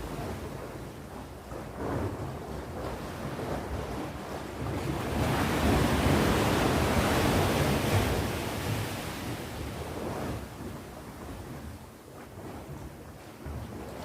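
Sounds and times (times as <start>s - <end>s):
sea waves crashing: 0.0s - 1.0s, 2.9s - 10.7s
low rumble of surf: 0.0s - 14.0s.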